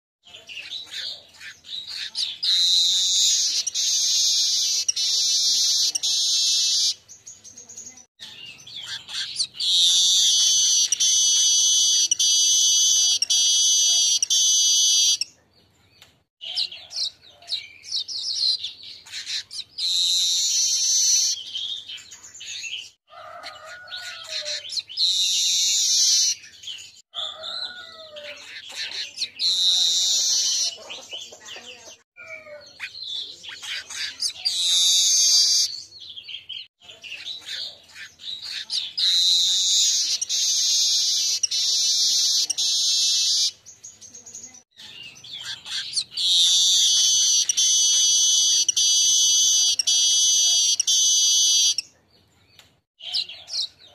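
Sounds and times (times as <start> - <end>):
bird chattering notes: 0.6 - 7.0, 8.6 - 15.3, 37.1 - 43.6, 44.8 - 51.8.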